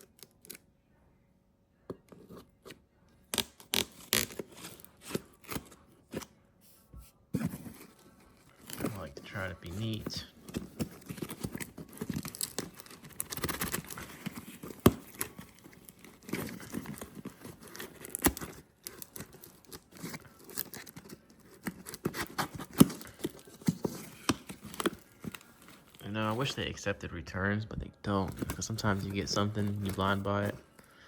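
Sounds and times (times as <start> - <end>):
packaging tearing and crinkling: 3.2 - 6.3, 7.5 - 26.6, 28.1 - 30.7.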